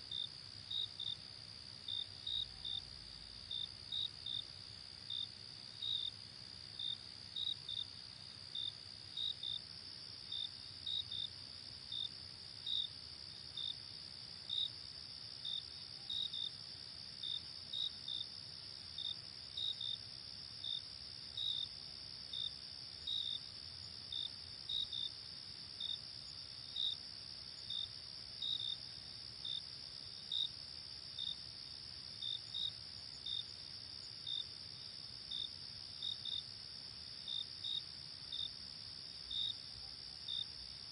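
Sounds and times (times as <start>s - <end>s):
cricket chirps: 0.0s - 40.9s.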